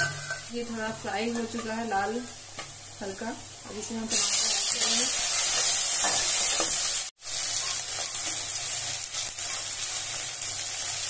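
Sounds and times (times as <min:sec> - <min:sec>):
metal spatula stirring: 0:00.0 - 0:00.5
vegetables sizzling in hot oil: 0:00.0 - 0:11.0.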